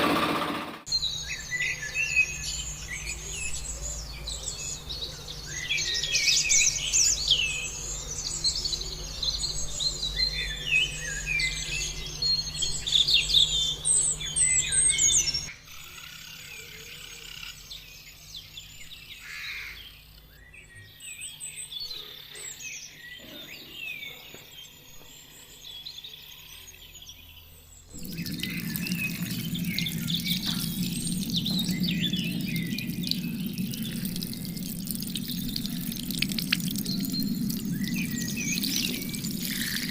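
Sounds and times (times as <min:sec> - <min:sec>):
birds chirping and singing: 0:00.9 - 0:39.9
low hum with hiss: 0:24.8 - 0:39.9.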